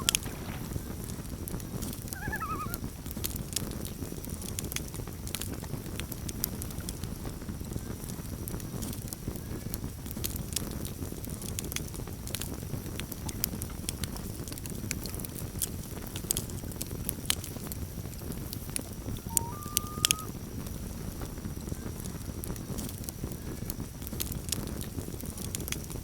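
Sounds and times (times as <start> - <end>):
loon calling: 0.0 - 0.3, 2.1 - 2.8, 18.9 - 20.3
campfire crackling and popping: 0.0 - 26.0.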